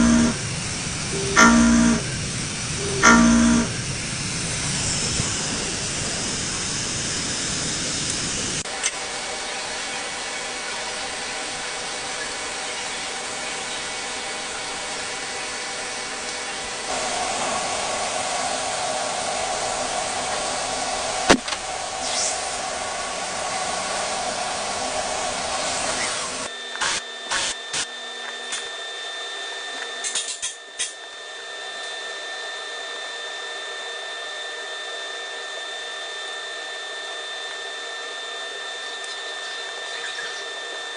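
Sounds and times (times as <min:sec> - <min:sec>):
steady high whine: 0:00.0 - 0:40.9
machine tool hissing: 0:11.8 - 0:27.8.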